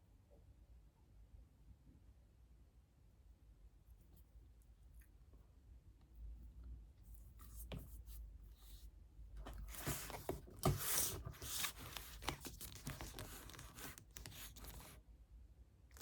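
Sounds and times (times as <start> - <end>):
packaging being torn and rustled: 10.8 - 15.0.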